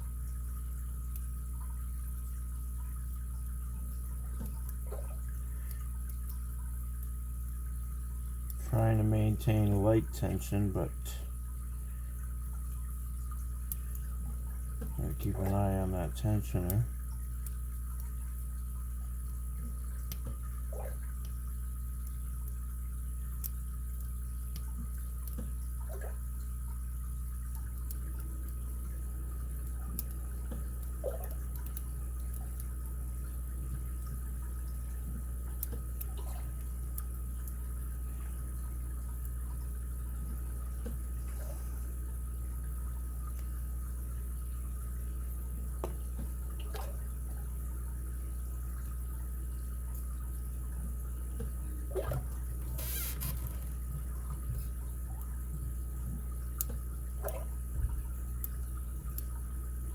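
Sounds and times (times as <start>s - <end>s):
electrical hum: 0.0s - 59.9s.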